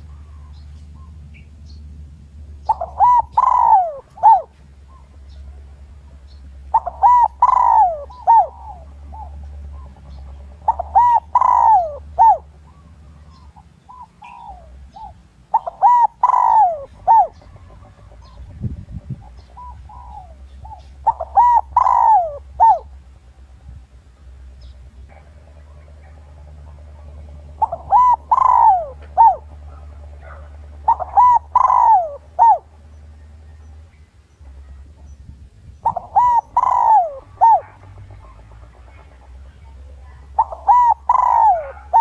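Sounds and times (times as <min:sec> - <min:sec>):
dove cooing: 0:00.0 - 0:42.0
steady low hum: 0:00.0 - 0:42.0.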